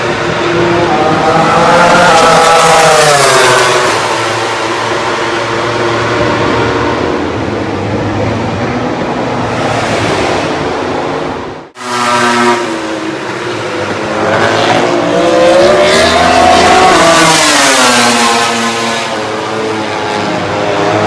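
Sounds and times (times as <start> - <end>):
racing motorcycle engine revving: 0.0 - 7.4, 11.8 - 21.0.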